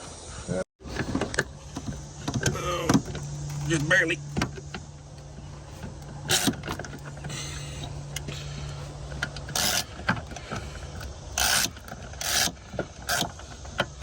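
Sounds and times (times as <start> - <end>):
low steady hum: 0.1 - 14.0
socket ratchet clicking: 11.0 - 14.0.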